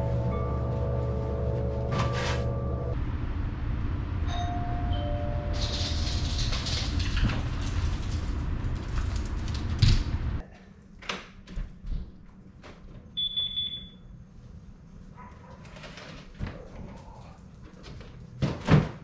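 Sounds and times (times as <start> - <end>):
two-note doorbell chime: 4.3 - 5.6.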